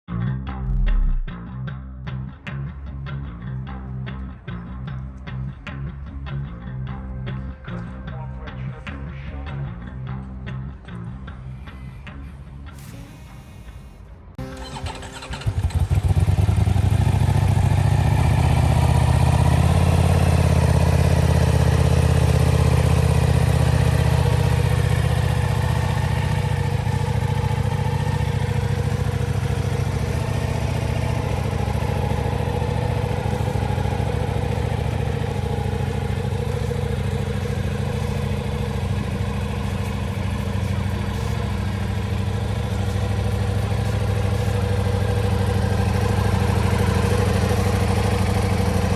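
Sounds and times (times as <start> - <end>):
engine idling high: 0.6 - 1.4, 10.8 - 48.9
motorcycle engine cold start: 12.8 - 48.9.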